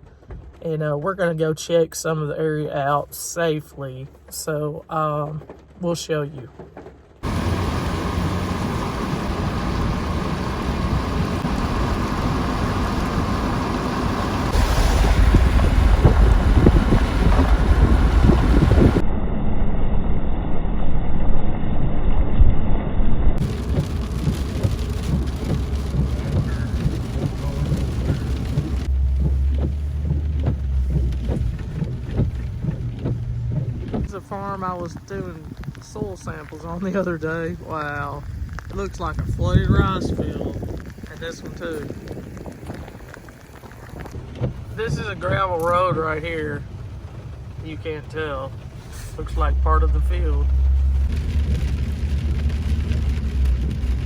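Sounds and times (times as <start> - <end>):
vehicle engine and road drone: 2.3 - 54.0
rain hiss: 7.2 - 19.0, 23.4 - 54.0
wind buffeting microphone: 7.2 - 19.0, 23.4 - 49.5.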